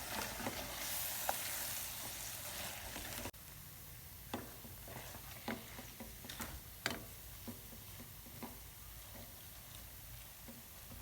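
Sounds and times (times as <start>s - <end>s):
utensil tapping and scraping pan: 4.3s - 9.4s.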